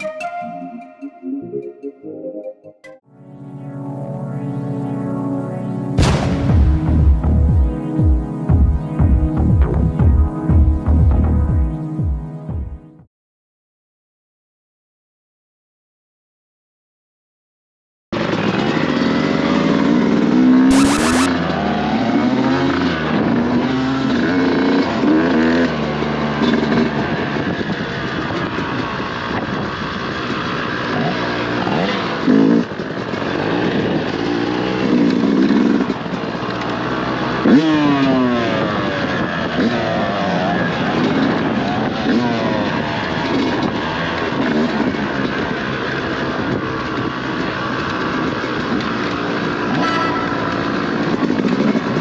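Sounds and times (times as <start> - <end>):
dirt bike engine revving: 18.2 - 27.0, 30.6 - 46.4, 47.0 - 52.0.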